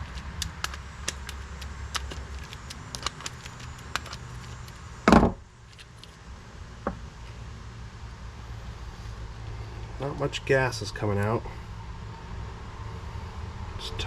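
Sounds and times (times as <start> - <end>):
loud thump: 5.1 - 5.4.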